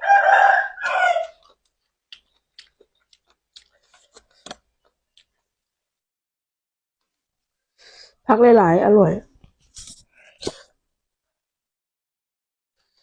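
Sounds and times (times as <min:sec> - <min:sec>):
rooster crowing: 0:00.0 - 0:01.4.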